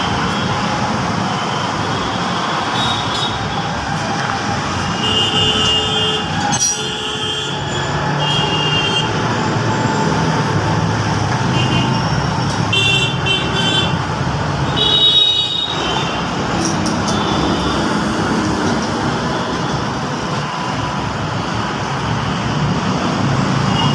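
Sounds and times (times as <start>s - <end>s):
engine and traffic noise: 0.0s - 23.9s.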